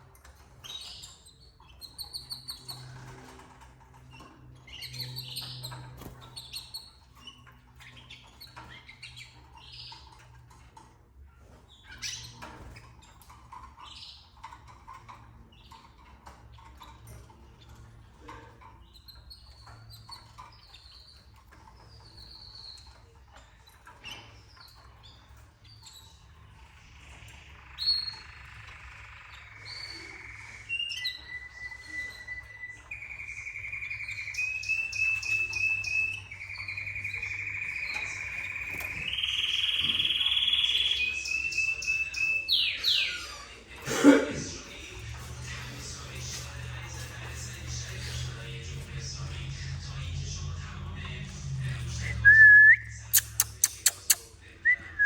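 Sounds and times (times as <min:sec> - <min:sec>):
canaries chirping and trilling: 0:00.0 - 0:54.9
steady low hum: 0:43.9 - 0:55.0.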